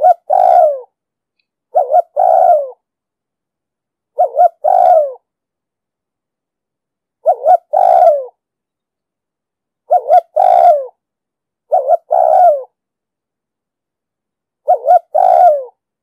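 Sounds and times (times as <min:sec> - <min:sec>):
dove cooing: 0:00.0 - 0:00.9, 0:01.7 - 0:02.8, 0:04.2 - 0:05.2, 0:07.2 - 0:08.4, 0:09.9 - 0:11.0, 0:11.7 - 0:12.8, 0:14.6 - 0:15.8.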